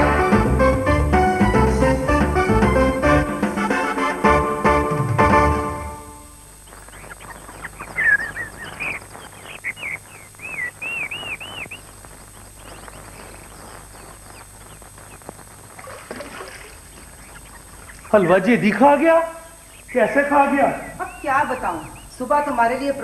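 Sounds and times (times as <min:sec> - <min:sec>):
steady low hum: 0:05.6 - 0:23.0
birds chirping: 0:06.3 - 0:23.0
bird whistling repeated notes: 0:06.8 - 0:14.8, 0:19.6 - 0:22.9.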